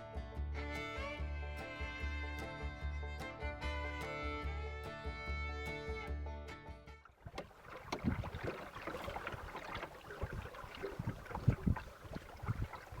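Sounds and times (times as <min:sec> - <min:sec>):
fiddle music: 0:00.0 - 0:07.1
splashes: 0:07.1 - 0:13.0
water slapping against boat hull: 0:07.1 - 0:13.0.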